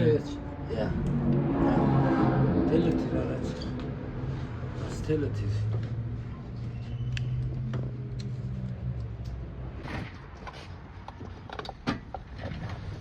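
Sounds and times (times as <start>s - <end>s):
low steady hum: 0.0s - 7.3s.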